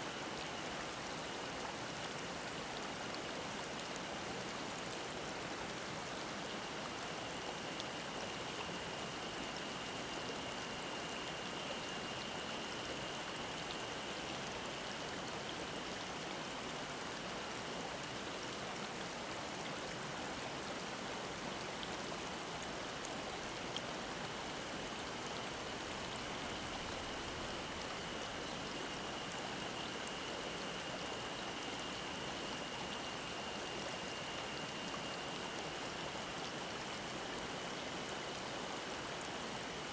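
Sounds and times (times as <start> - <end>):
cicada droning: 24.2 - 39.8.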